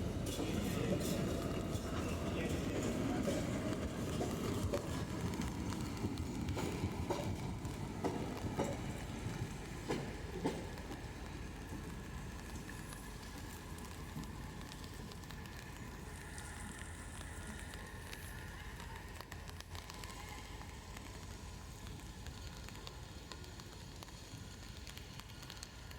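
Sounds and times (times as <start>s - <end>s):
train rumble: 0.0s - 25.9s.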